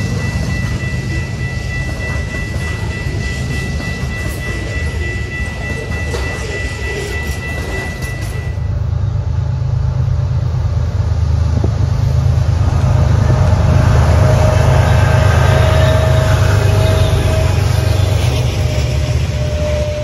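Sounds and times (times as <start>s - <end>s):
steady high tone: 0.0s - 9.4s, 12.1s - 20.0s
diesel train rumble: 0.0s - 20.0s.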